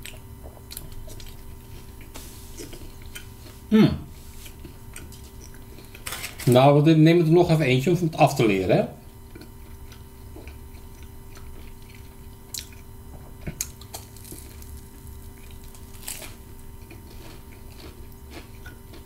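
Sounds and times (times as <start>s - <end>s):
wet chewing mouth sounds: 4.3s - 6.0s, 9.0s - 12.9s, 15.3s - 19.0s.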